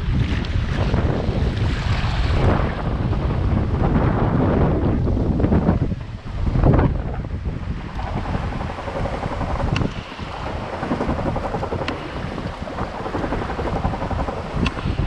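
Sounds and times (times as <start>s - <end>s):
water rushing past hull: 0.0s - 15.0s
wind buffeting microphone: 0.0s - 15.0s
two-stroke engine running: 7.6s - 15.0s.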